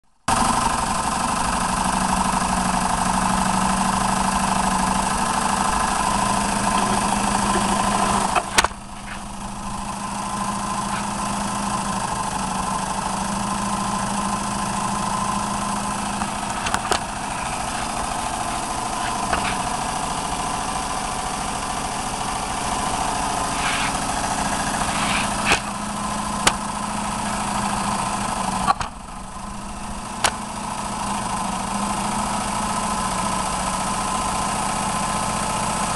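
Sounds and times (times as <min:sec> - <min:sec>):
air engine running: 0:00.3 - 0:35.9
sharp clicks: 0:16.1 - 0:19.8.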